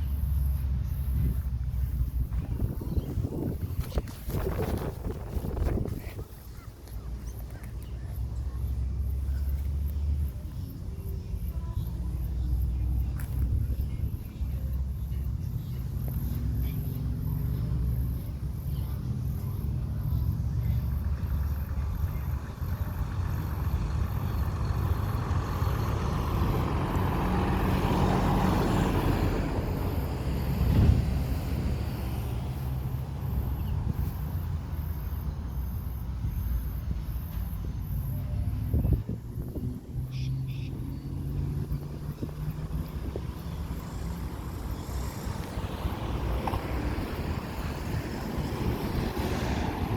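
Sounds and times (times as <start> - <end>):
diesel engine low rumble: 0.0 - 49.9
garbage truck driving by: 19.7 - 36.1, 39.8 - 49.9.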